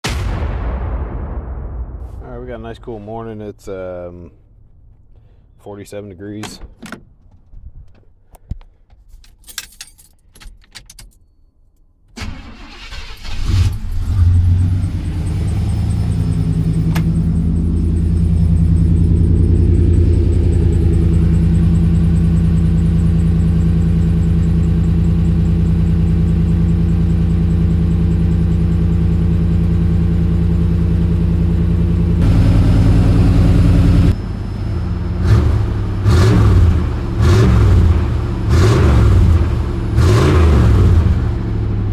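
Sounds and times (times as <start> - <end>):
engine cranking: 12.2 - 29.7
engine idling: 12.2 - 41.9
engine throttle blips: 12.2 - 41.9.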